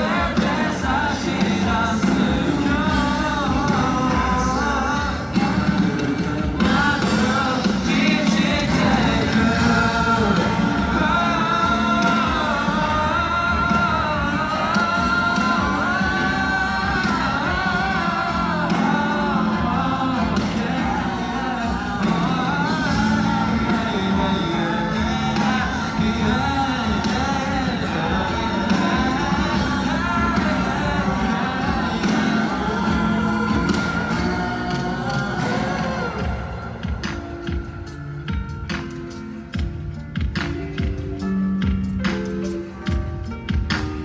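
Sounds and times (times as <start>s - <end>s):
lead singer: 0.0s - 44.0s
live pop-rock band: 0.0s - 44.0s.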